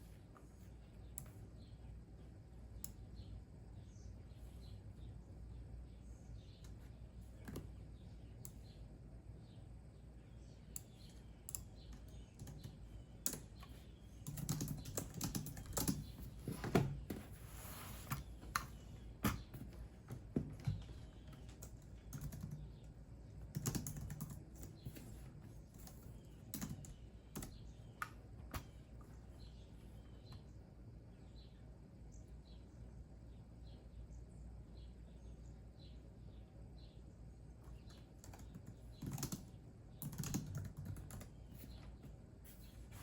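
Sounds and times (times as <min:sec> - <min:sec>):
faint low hum: 0:00.0 - 0:43.0
keyboard typing: 0:10.8 - 0:17.0, 0:18.0 - 0:28.8, 0:37.7 - 0:41.8.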